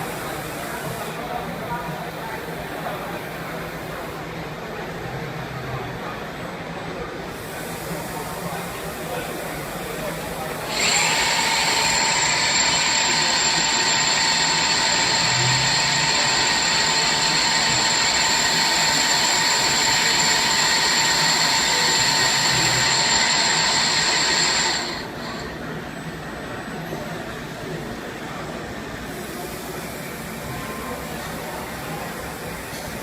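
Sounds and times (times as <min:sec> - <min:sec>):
lathe high whine over hiss: 0:07.5 - 0:25.6.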